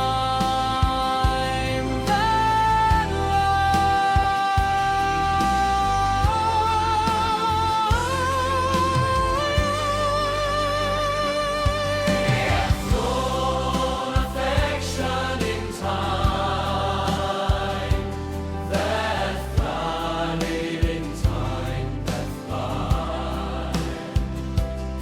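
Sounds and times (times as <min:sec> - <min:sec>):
bass: 0:00.0 - 0:25.0
steady drum beat: 0:11.7 - 0:25.0
choir-like vocals: 0:11.8 - 0:25.0.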